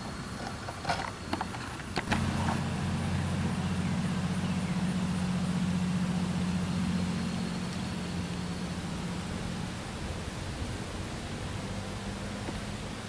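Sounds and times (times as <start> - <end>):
engine starting and idling: 2.1 - 9.8.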